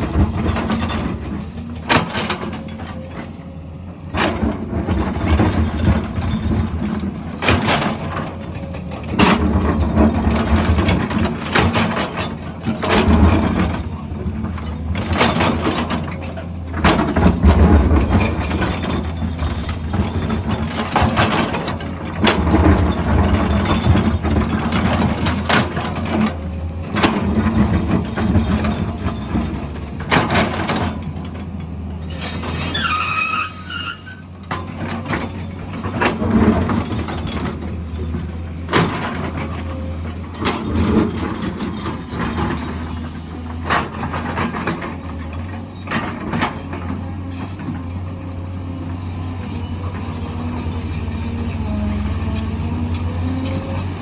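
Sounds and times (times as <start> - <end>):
excavator diesel engine: 0.0 - 54.0.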